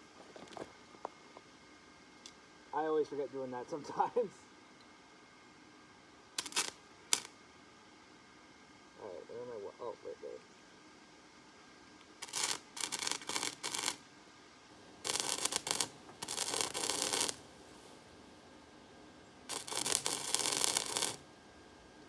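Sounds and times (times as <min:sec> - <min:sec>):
welding arc crackling: 0:06.4 - 0:07.4, 0:12.0 - 0:14.0, 0:14.7 - 0:22.0.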